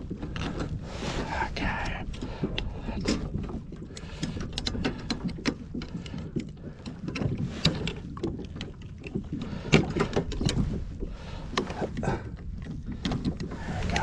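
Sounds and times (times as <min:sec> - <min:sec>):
water splashing: 0:07.5 - 0:14.0.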